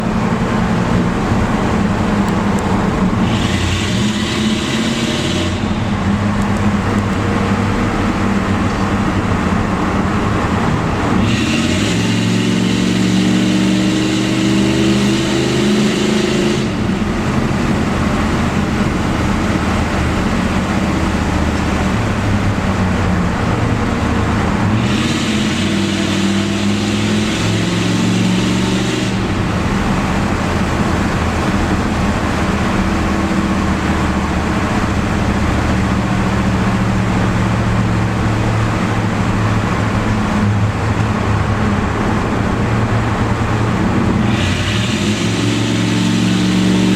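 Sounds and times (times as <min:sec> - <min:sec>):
loud car exhaust revving: 0:00.0 - 0:46.9.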